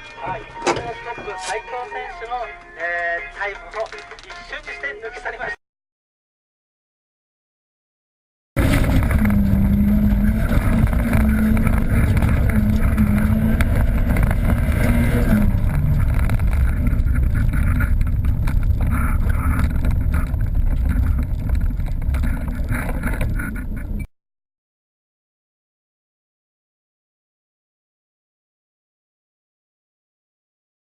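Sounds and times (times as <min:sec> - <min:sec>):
car engine tone: 0:08.6 - 0:24.1
low rumble: 0:08.6 - 0:24.1.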